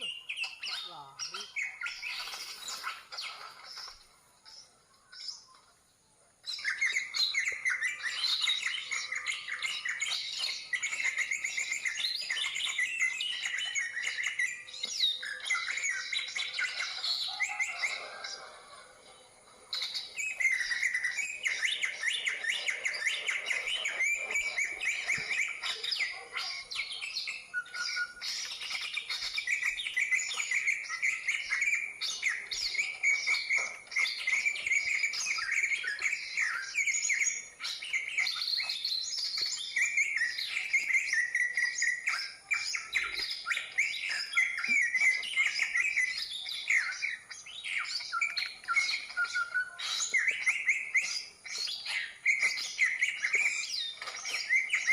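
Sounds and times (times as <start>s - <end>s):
bird song chattering and whistling: 0.0s - 54.9s.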